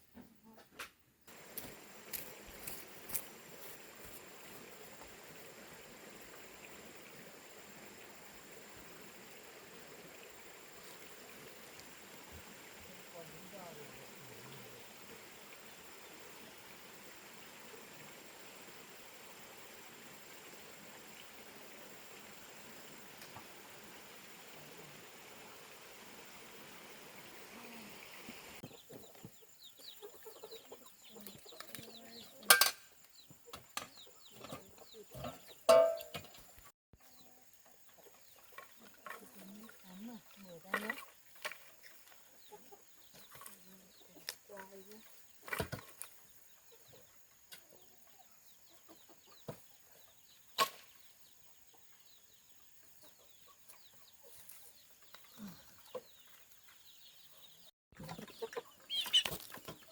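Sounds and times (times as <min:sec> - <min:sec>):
background hiss: 0:00.0 - 0:34.3
ducklings peeping: 0:58.1 - 0:59.9.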